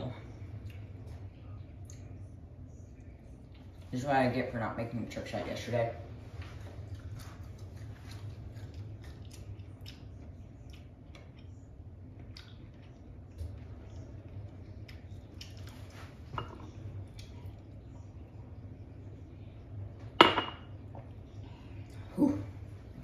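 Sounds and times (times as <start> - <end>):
steady low hum: 0.0 - 23.0
person chewing with crunches: 6.4 - 16.3.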